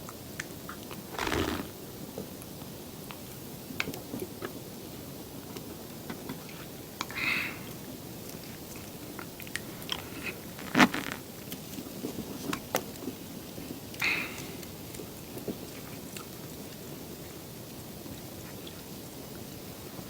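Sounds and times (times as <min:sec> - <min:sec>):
crunchy bite: 0:01.1 - 0:01.7.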